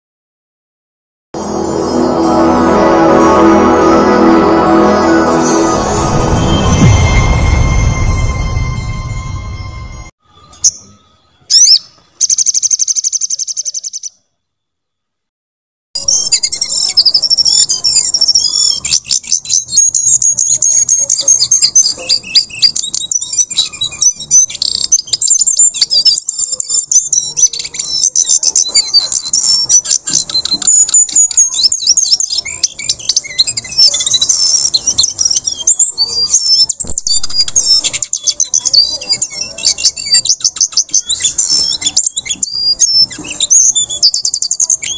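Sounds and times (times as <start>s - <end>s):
short intro sounds: 1.4s - 10.1s.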